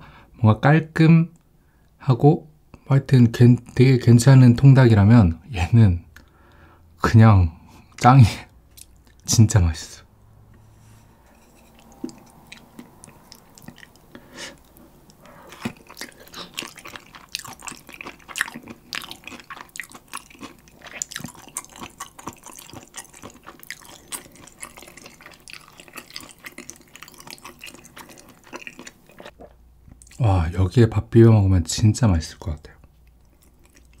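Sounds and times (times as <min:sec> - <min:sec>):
close chewing of food: 0:11.6 - 0:30.2, 0:32.8 - 0:34.0.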